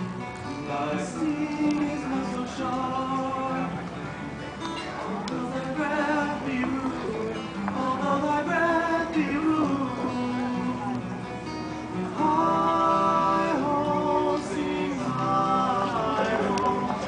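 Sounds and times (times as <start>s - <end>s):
acoustic guitar strumming: 0.0s - 17.0s
people singing long notes: 12.0s - 17.0s.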